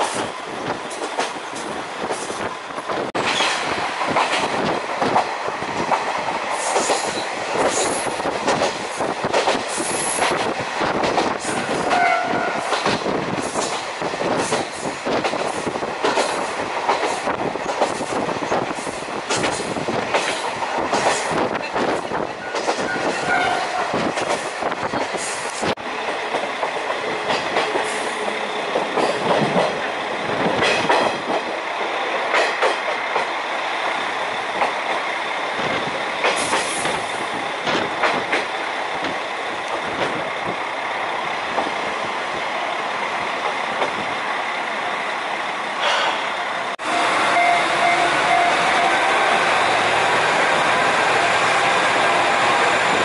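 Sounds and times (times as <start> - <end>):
train wheels clattering over rail joints: 0.0 - 42.4, 43.2 - 44.2, 45.8 - 46.3
brief high tone: 46.8 - 49.0.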